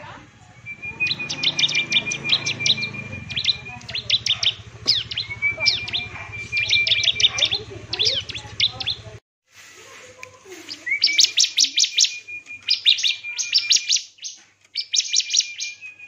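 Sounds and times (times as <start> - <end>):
songbird singing: 0.0 - 9.2, 10.2 - 16.0.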